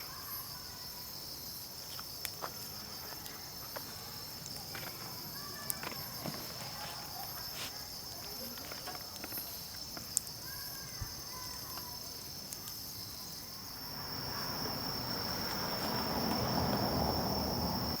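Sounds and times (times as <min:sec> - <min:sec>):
continuous high insect trill: 0:00.0 - 0:18.0
pulsing high insect singing: 0:09.4 - 0:18.0.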